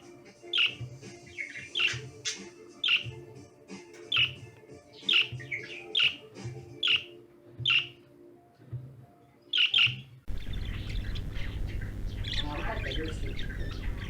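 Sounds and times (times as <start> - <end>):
faint background music: 0.0 - 14.0
budgerigar chirping: 0.5 - 3.2, 4.1 - 4.4, 5.0 - 8.0, 9.5 - 14.0.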